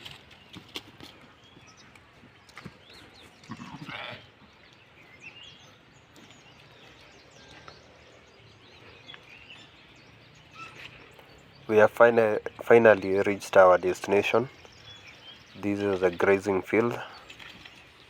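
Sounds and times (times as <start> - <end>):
sheep bleating: 3.4 - 4.2.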